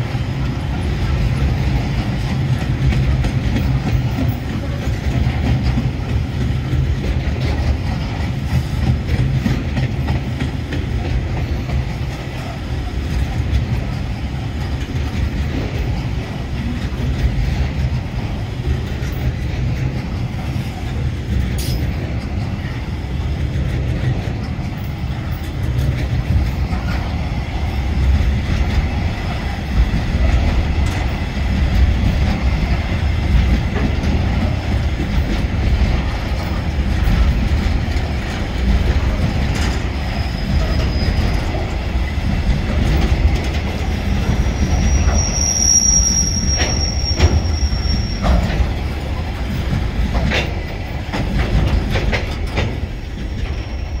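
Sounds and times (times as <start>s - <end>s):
freight train wheels rumbling: 0.0s - 54.0s
high-pitched wheel squeals: 44.3s - 48.4s
wheel clicks on rail: 46.0s - 53.7s.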